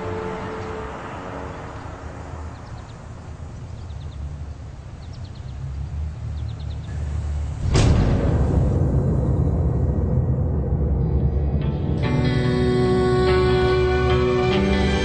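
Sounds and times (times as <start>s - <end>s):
background music: 0.0s - 2.6s, 7.6s - 15.0s
small birds chirping: 1.6s - 7.4s
low steady rumble: 2.8s - 12.6s.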